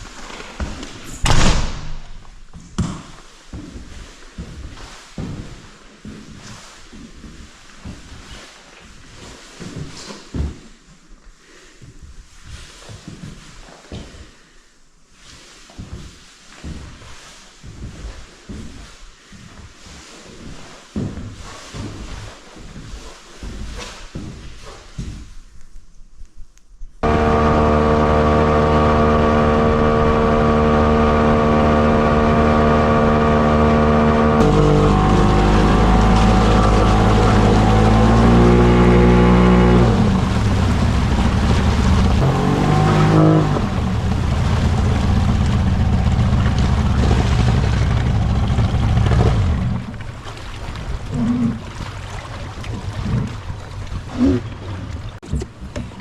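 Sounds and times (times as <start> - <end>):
jet boat motor running: 27.0 - 50.2.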